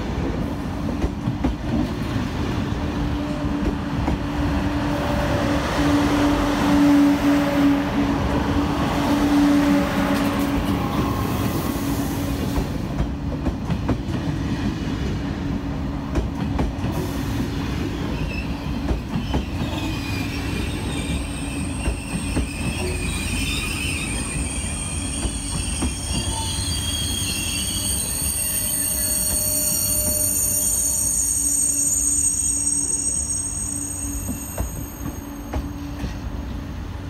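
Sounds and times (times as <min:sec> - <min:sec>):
train rumbling on rails: 0:00.0 - 0:37.0
high-pitched wheel squeal: 0:19.6 - 0:35.7.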